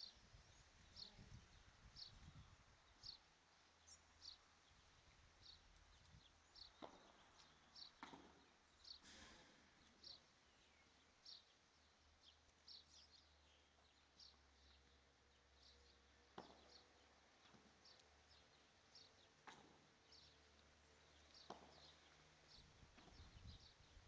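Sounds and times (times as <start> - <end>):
small bird chirping: 0.0 - 24.0
ball striking rackets: 8.0 - 8.4, 21.5 - 21.9, 23.0 - 23.3.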